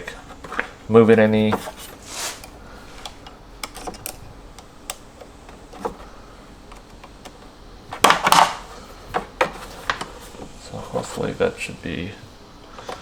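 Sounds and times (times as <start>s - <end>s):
scraping rustle: 0.0s - 3.2s.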